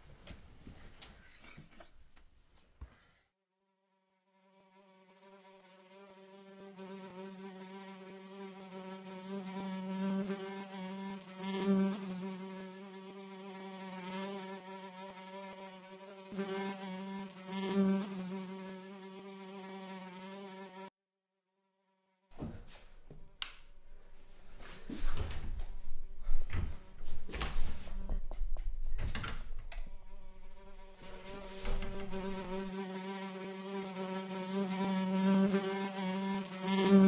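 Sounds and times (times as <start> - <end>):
fly buzzing: 4.1 - 20.9, 29.8 - 37.0.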